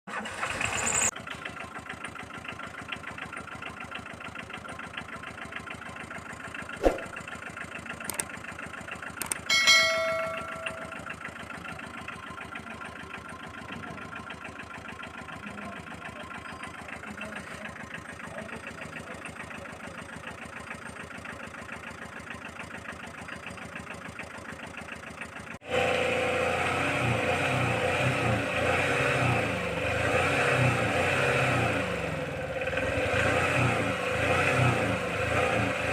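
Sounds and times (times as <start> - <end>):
engine running with even pulse: 1.8 - 35.9
louder engine sound: 6.6 - 8.2, 9.2 - 11.8, 25.6 - 35.9
sharp click: 8.0 - 8.3, 9.2 - 9.5
short ringing tone: 9.5 - 11.2.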